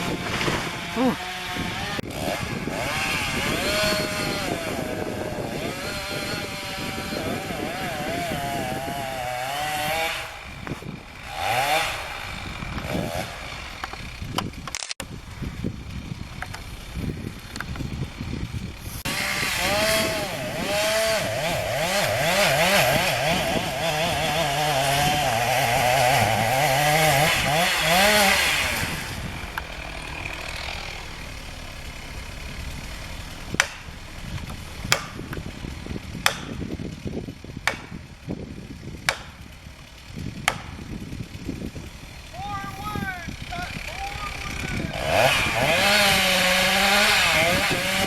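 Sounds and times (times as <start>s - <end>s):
chainsaw revving: 0.0s - 48.0s
sharp knocks or cracks: 36.2s - 36.6s, 37.7s - 38.0s, 40.5s - 40.8s.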